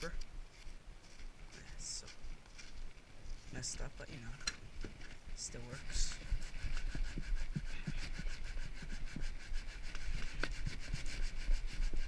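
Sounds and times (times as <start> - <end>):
sandpaper scraping a log: 5.5 - 12.0.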